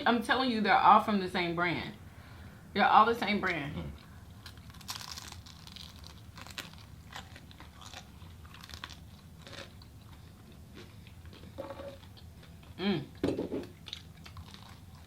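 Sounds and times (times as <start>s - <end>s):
people chewing food: 3.8s - 15.0s.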